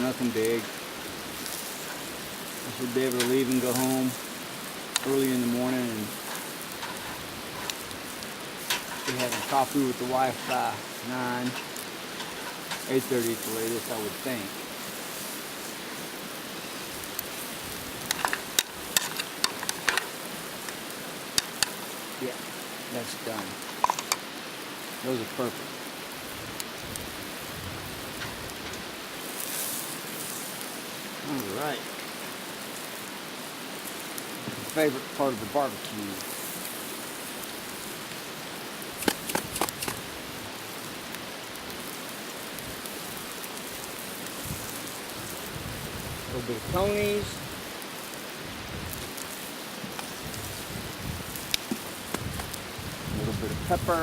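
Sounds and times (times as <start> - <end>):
meat sizzling on a grill: 0.0 - 54.0
sharp clicks: 39.0 - 40.0
sharp clicks and taps: 39.0 - 40.0, 51.5 - 52.6.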